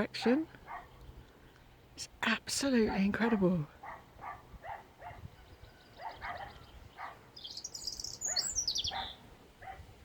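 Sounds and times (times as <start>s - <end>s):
distant dogs barking: 0.1s - 1.0s, 2.8s - 7.4s, 8.0s - 10.0s
songbird singing high notes: 5.3s - 9.3s.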